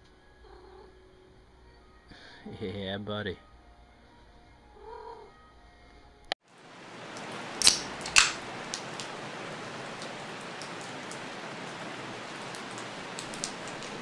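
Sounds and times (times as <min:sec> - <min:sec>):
rain falling steadily: 0:06.4 - 0:14.0
raindrops ticking: 0:06.5 - 0:14.0.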